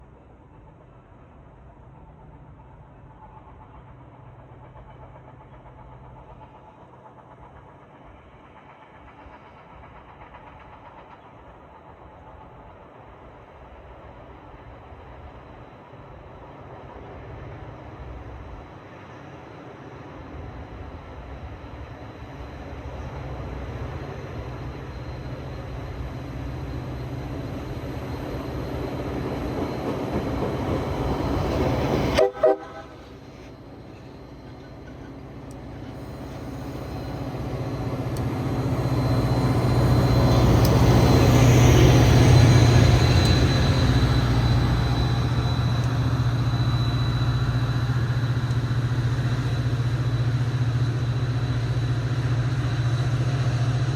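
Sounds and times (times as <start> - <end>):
diesel train passing: 0.0 - 53.9
train horn blast: 32.1 - 33.5.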